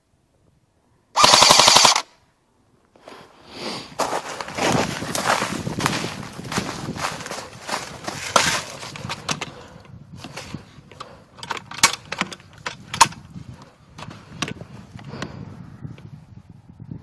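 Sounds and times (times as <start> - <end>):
footsteps in dry leaves: 3.6 - 8.9.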